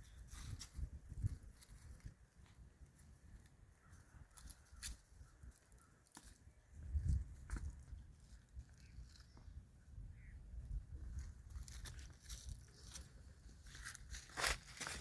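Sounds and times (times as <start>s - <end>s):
crunching and rustling: 11.0s - 15.0s.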